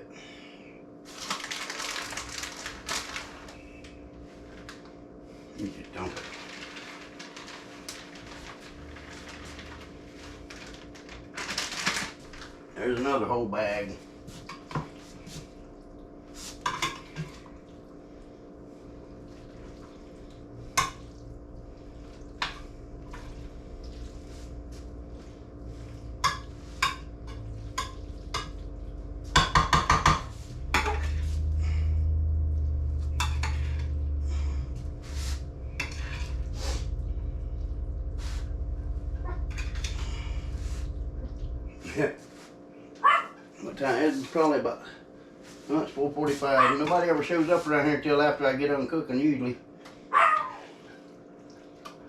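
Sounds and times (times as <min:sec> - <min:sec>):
low steady rumble: 0:01.2 - 0:48.9
metal spoon scraping a pot: 0:35.8 - 0:36.4.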